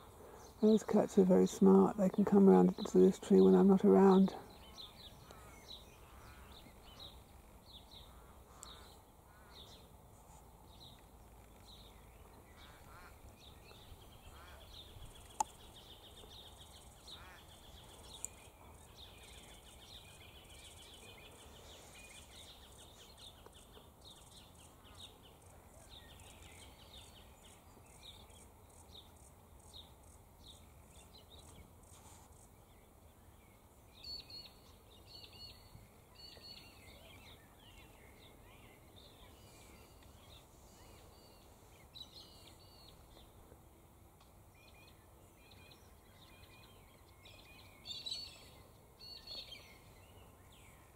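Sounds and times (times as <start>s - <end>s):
small birds chirping: 0.0s - 43.6s, 44.5s - 50.9s.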